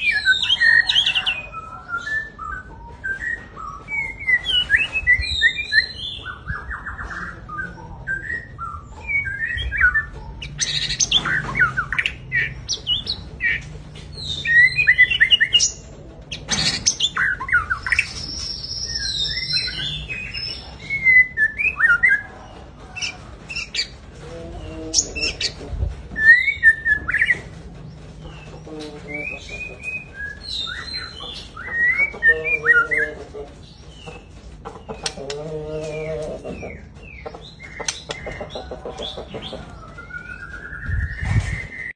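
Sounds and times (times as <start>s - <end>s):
bird singing whistled phrases: 39.7s - 41.9s.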